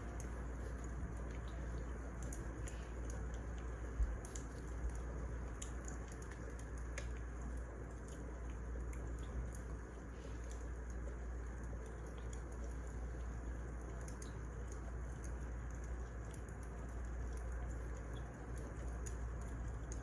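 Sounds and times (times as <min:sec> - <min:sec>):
wood fire crackling and popping: 0:00.1 - 0:09.7.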